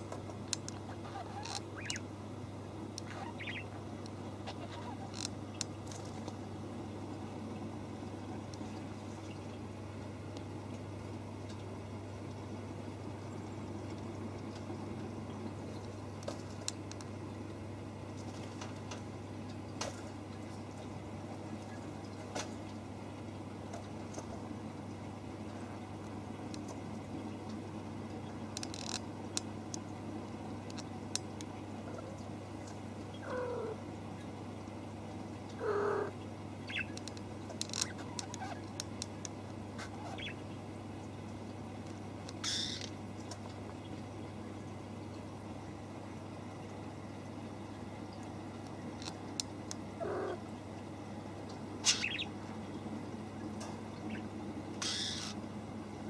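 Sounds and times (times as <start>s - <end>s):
steady low hum: 0.0s - 56.0s
small bird chirping: 0.9s - 2.1s, 3.0s - 3.8s, 35.6s - 37.0s, 39.9s - 40.4s, 42.4s - 42.9s, 51.8s - 52.3s, 54.1s - 55.4s
faint clicks: 15.7s - 17.2s, 30.6s - 31.5s, 36.7s - 39.5s, 48.2s - 49.9s.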